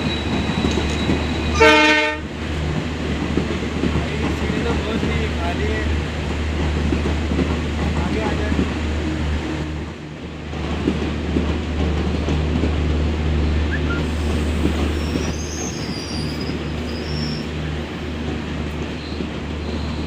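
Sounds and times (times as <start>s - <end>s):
high wheel squeal: 0.0s - 1.6s, 13.8s - 17.7s
train wheels rumbling on rails: 0.0s - 20.0s.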